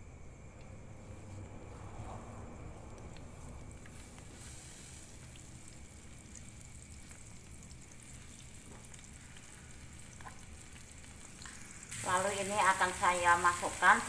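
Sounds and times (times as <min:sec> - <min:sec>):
paste sizzling in oil: 0:02.7 - 0:14.0
small pops and ticks: 0:02.9 - 0:04.4, 0:05.2 - 0:11.7.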